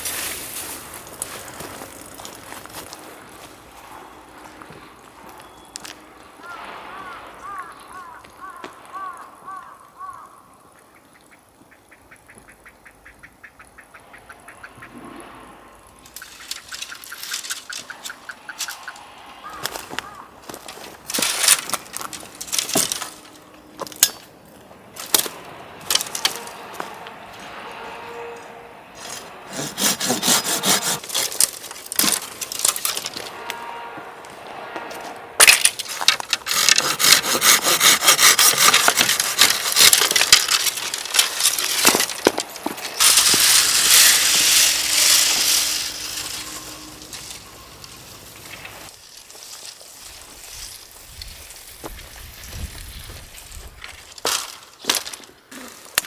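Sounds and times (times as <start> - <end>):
hand saw strokes: 16.1 - 24.2, 25.0 - 51.6.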